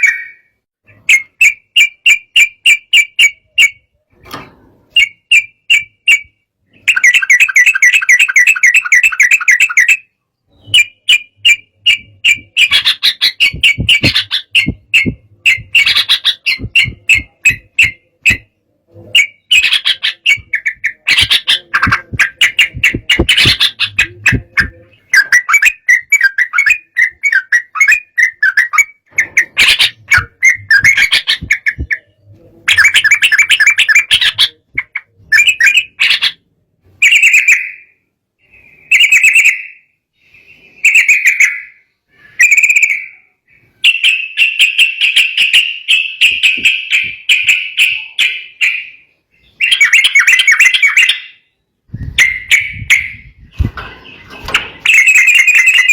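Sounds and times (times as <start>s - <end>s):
bird singing bubbling phrases: 6.9s - 36.3s.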